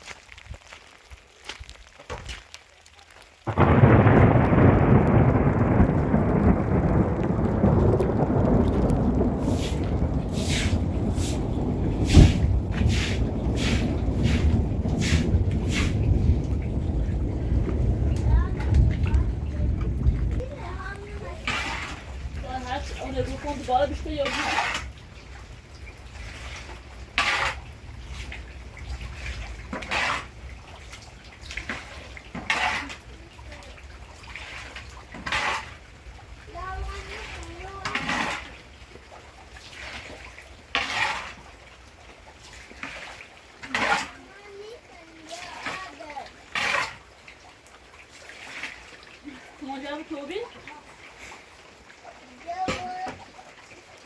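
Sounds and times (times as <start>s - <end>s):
rain: 0.0s - 54.0s
water splashing: 0.0s - 54.0s
storm wind: 3.4s - 42.5s
steady low rumble: 3.5s - 24.2s
loud thump: 12.0s - 13.2s.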